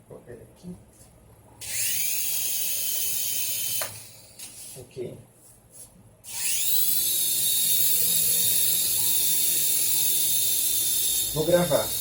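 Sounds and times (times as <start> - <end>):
toy helicopter motor whine: 1.6 - 4.8, 6.2 - 12.0.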